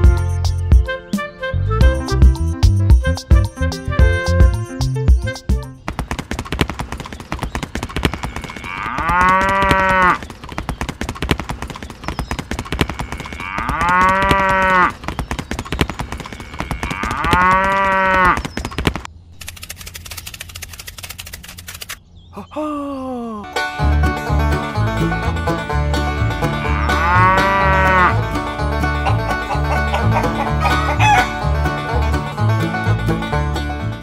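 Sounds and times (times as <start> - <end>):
dense gritty crackling: 5.8 - 22.0
cow mooing: 7.9 - 10.2, 12.7 - 15.0, 16.3 - 18.4, 26.6 - 28.2.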